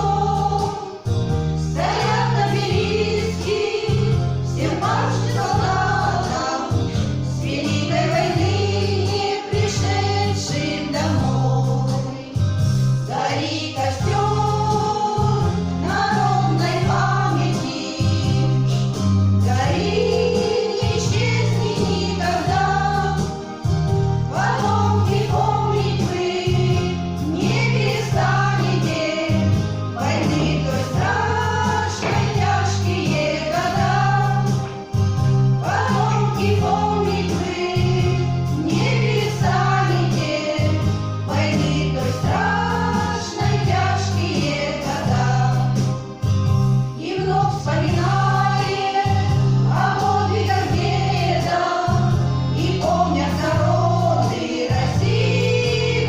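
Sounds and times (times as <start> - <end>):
women singing together: 0.0 - 46.1, 47.0 - 56.0
instrumental accompaniment: 0.0 - 56.0.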